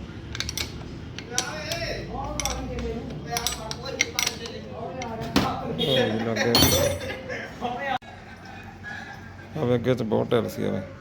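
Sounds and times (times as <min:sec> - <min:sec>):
hand tools clinking on metal: 0:00.4 - 0:05.2, 0:06.6 - 0:07.2.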